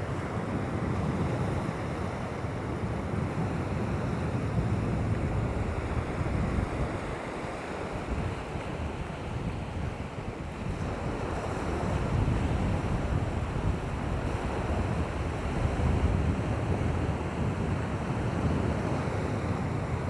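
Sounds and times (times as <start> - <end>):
wind rumbling on microphone: 8.0 - 18.7.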